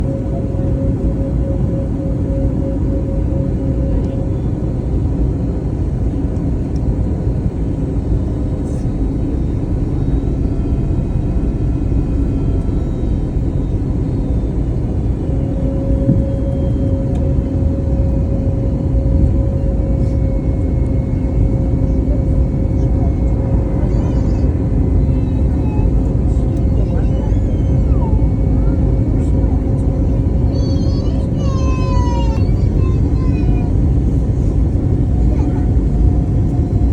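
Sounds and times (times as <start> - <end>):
aircraft engines and airflow rumble: 0.0 - 36.9
steady hum: 7.6 - 27.0.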